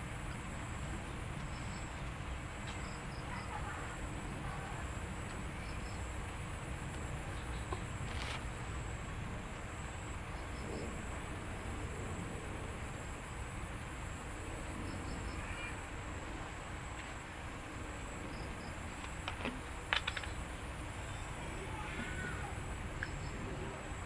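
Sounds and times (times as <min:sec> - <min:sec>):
insects trilling: 0:00.0 - 0:24.0
low steady rumble: 0:00.0 - 0:24.0
insect triple chirps: 0:00.1 - 0:03.7, 0:14.8 - 0:15.9.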